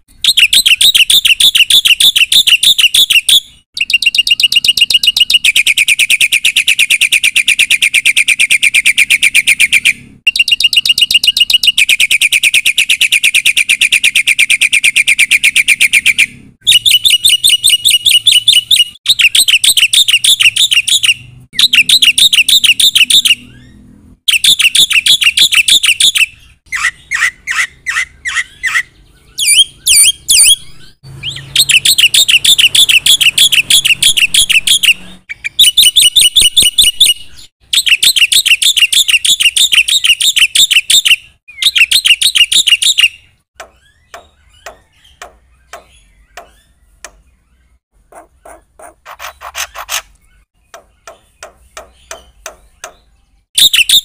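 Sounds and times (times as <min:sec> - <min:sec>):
bird singing high-pitched phrases: 0:00.0 - 0:54.0.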